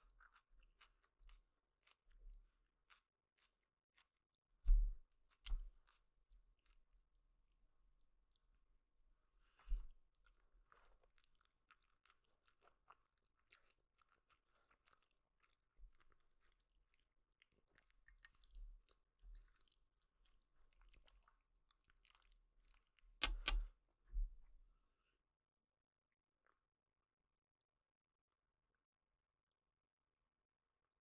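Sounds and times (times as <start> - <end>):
person chewing noodles: 0.1 - 4.1, 11.0 - 17.0
loud sharp clicks: 23.2 - 23.6.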